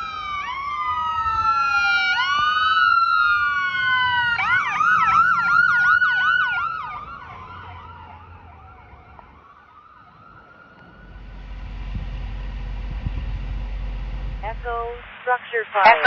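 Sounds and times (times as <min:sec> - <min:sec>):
siren in fast yelp: 0:00.0 - 0:11.0
siren in slow wail: 0:00.0 - 0:15.0
low rumble: 0:10.8 - 0:15.3.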